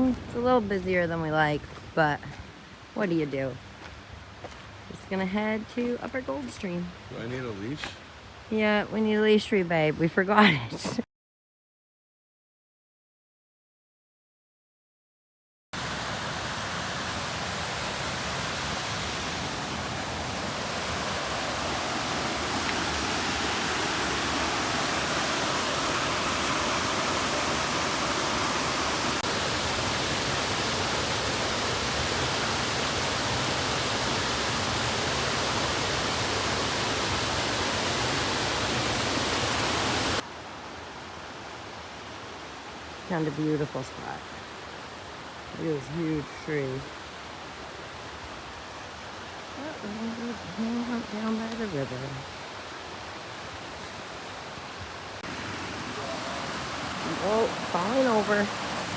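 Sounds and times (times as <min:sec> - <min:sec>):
fast-flowing river water: 0:15.8 - 0:43.0, 0:46.9 - 0:58.9.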